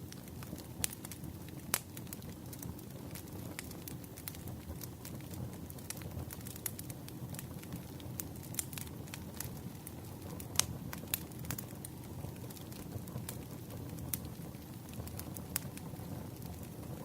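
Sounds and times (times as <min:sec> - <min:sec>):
campfire flames rumbling: 0:00.0 - 0:17.0.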